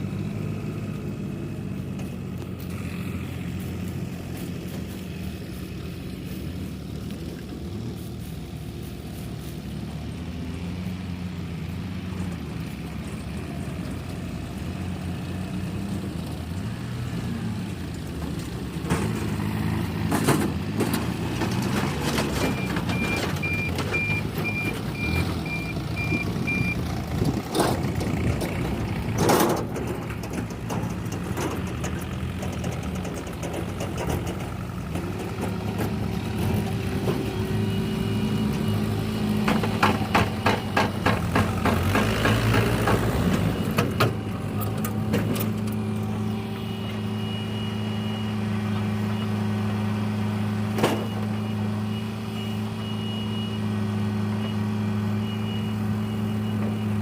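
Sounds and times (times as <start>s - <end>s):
diesel engine running: 0.0s - 57.0s
reversing alarm beeping: 22.4s - 26.8s, 37.0s - 41.5s, 46.1s - 49.5s, 50.9s - 57.0s.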